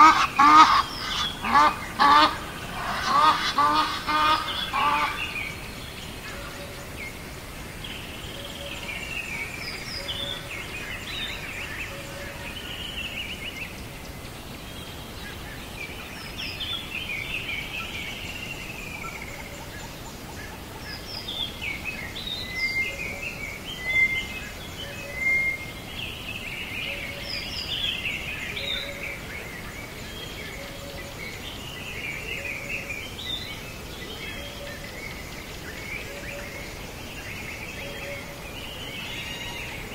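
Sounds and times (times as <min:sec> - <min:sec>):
birds chirping and warbling: 0:00.0 - 0:39.9
steady hiss: 0:00.0 - 0:39.9.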